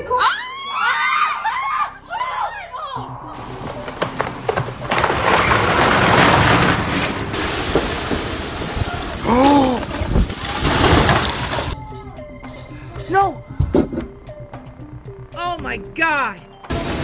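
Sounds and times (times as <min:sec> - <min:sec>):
short voice-like cry: 0:12.7 - 0:13.4, 0:15.4 - 0:16.4.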